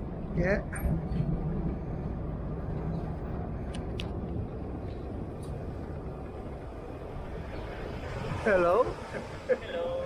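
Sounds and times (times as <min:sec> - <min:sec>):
tram rumbling along track: 0:00.0 - 0:10.0.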